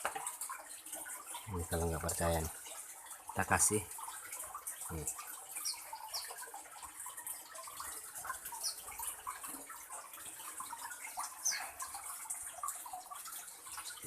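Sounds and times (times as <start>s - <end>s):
small birds chirping: 4.4s - 13.2s.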